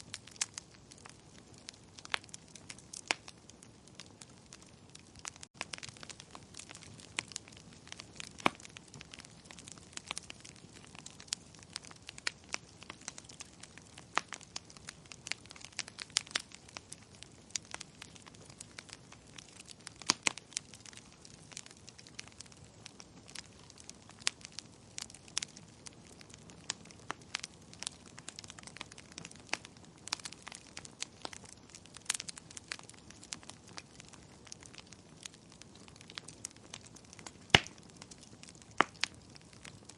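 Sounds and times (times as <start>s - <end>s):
fire crackling: 0.0s - 39.9s.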